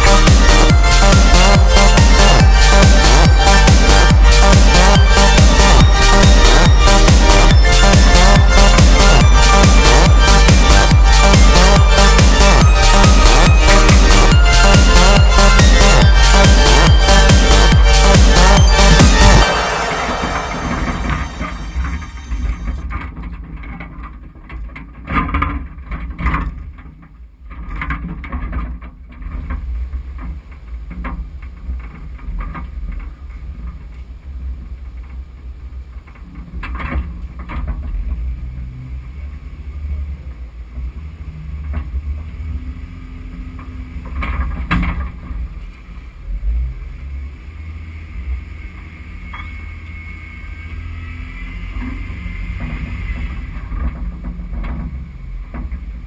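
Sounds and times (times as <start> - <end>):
engine rumble: 0.0 - 22.8.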